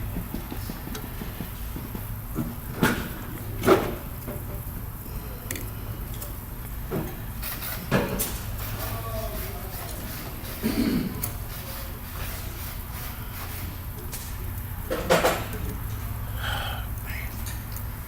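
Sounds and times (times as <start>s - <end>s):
steady low hum: 0.0s - 18.0s
tools knocking and clicking: 14.9s - 15.8s.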